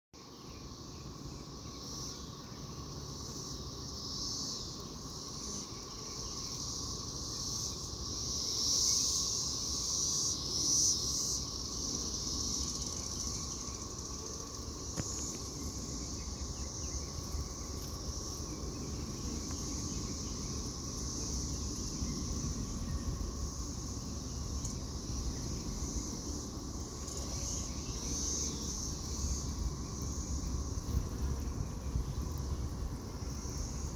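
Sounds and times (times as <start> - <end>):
cicada buzz: 0.2 - 33.9.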